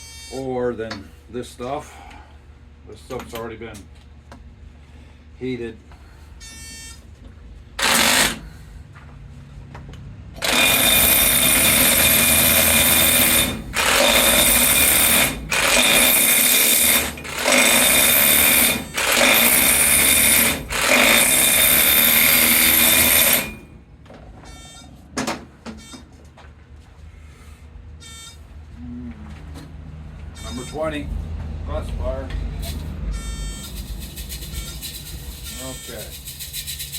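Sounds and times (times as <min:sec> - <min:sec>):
hammer drill crushing ore: 0:07.8 - 0:08.5, 0:10.4 - 0:23.7.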